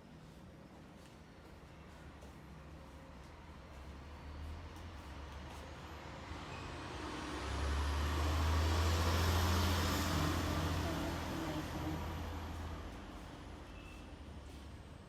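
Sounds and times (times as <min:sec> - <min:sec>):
truck engine rumble passing: 0:05.9 - 0:13.7.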